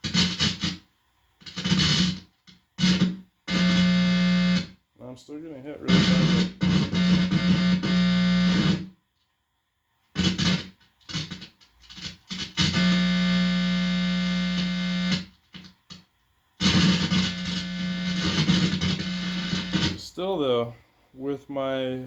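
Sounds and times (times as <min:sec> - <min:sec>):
distorted guitar amplifier buzz: 0:00.0 - 0:09.0, 0:10.1 - 0:20.6.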